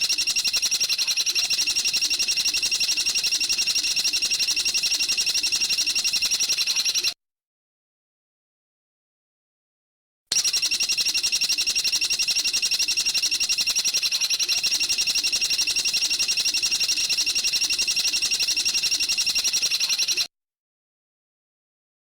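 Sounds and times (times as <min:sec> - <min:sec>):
bird high-pitched trill: 0:00.0 - 0:07.2, 0:10.4 - 0:20.3.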